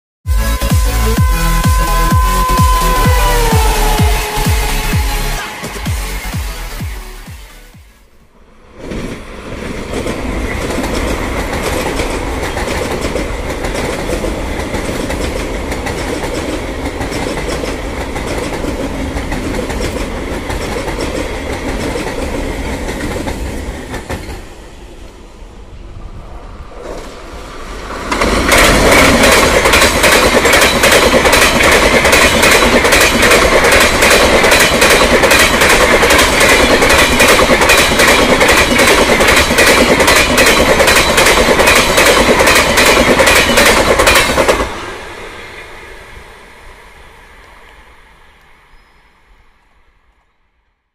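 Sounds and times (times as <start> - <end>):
electric train passing: 0.3 - 50.7
train wheels clacking over rail joints: 9.8 - 24.5, 28.0 - 44.8.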